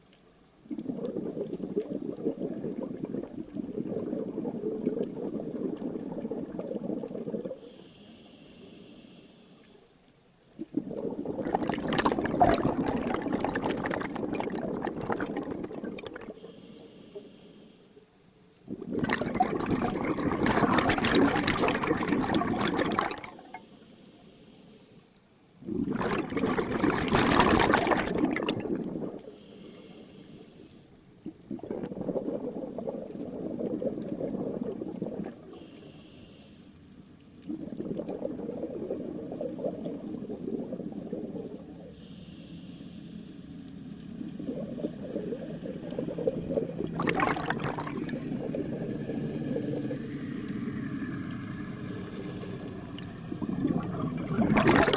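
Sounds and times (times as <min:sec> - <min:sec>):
exhaled bubbles gurgling underwater: 0:00.0 - 0:08.0, 0:10.4 - 0:17.2, 0:18.5 - 0:23.8, 0:25.5 - 0:30.2, 0:31.0 - 0:36.2, 0:36.8 - 0:54.9
faint hissing inhalations: 0:07.5 - 0:10.0, 0:16.3 - 0:18.2, 0:23.3 - 0:25.2, 0:29.2 - 0:31.0, 0:35.5 - 0:37.0, 0:41.7 - 0:43.7, 0:51.8 - 0:53.0.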